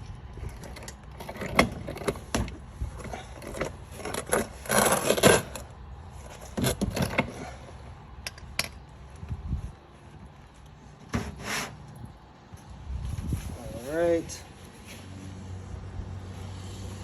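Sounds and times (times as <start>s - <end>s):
hand tool clinking and scraping: 0.0s - 5.6s.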